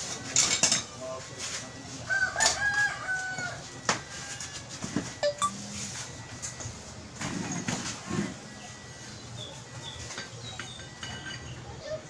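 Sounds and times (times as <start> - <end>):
rooster crowing: 2.1 - 4.6.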